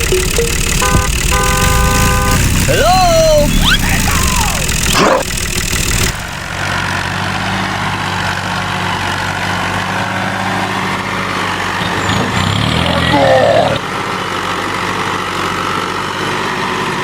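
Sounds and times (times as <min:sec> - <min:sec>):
tractor engine idling: 0:00.0 - 0:07.3.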